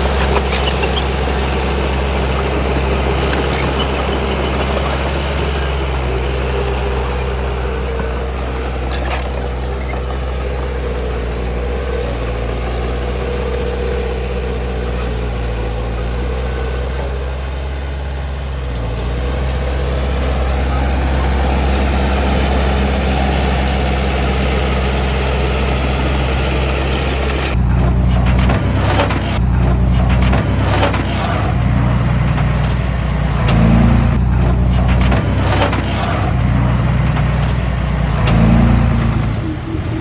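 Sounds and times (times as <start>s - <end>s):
metal clanks and knocks: 0.0s - 13.3s, 27.1s - 40.0s
heavy diesel bulldozer engine: 0.0s - 40.0s.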